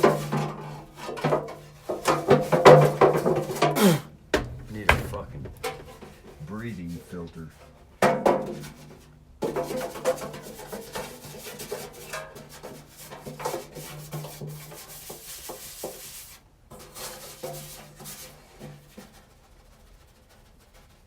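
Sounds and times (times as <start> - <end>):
scrubbing and scraping: 0.0 - 7.9, 8.6 - 21.0
low hum: 4.4 - 7.4.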